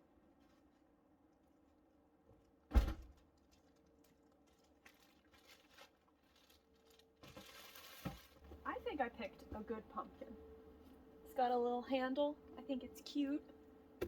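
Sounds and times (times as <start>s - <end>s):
loud thump: 2.7s - 3.1s
rustling: 3.4s - 8.5s.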